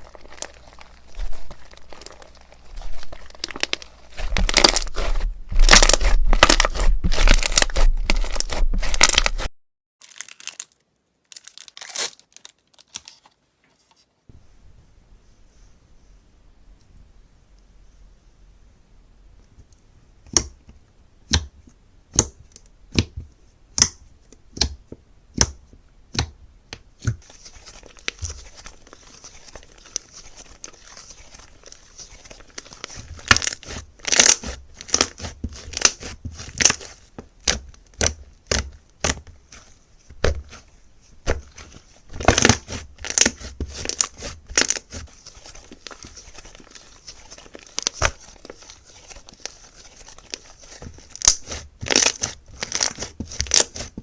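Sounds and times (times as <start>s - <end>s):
slime popping and crackling: 0.0s - 12.5s, 27.1s - 40.6s, 41.2s - 54.0s.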